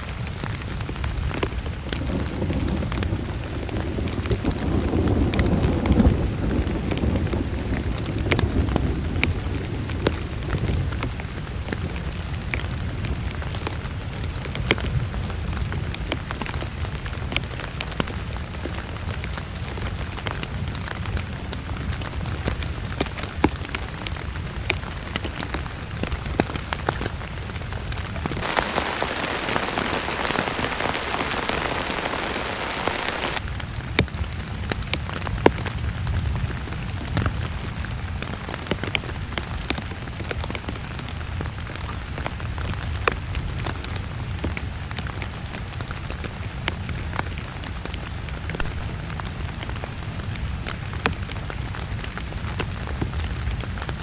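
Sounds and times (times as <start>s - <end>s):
heavy rain on a surface: 0.0s - 54.0s
loud rain hiss: 0.0s - 54.0s
sharp raindrop hits: 0.0s - 54.0s.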